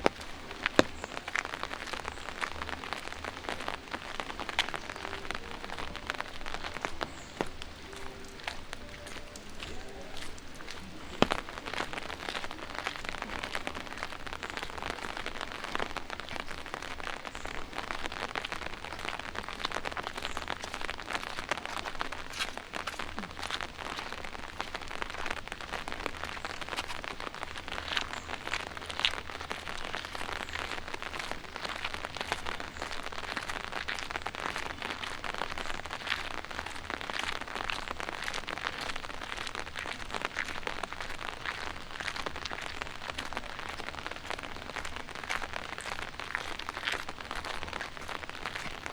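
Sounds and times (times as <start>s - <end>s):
light rain pattering: 0.0s - 48.9s.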